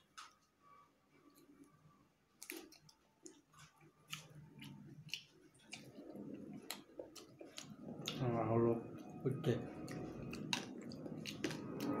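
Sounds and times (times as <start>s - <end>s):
close-up chewing: 2.4s - 12.0s
mouth clicks and smacks: 9.8s - 12.0s.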